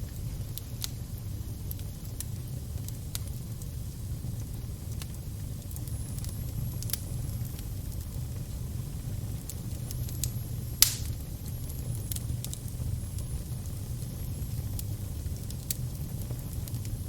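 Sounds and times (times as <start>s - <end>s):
fire burning and crackling: 0.0s - 17.0s
loud fire pop: 10.8s - 11.2s.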